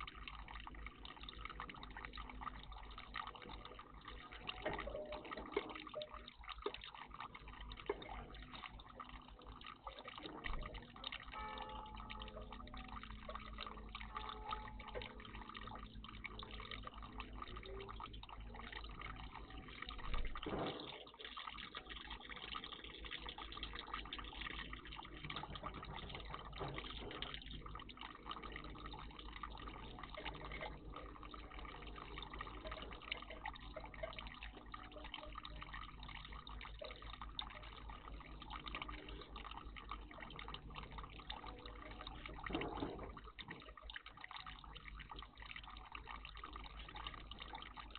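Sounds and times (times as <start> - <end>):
water trickling and dripping: 0.0 - 47.9.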